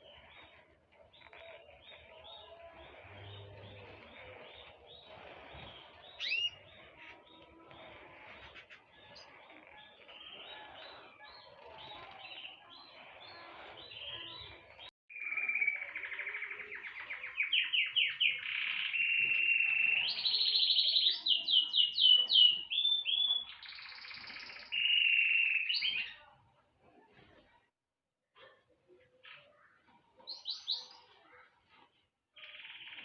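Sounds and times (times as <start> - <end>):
faint bird twittering: 0.0 - 26.4
songbird singing trills: 9.2 - 26.2.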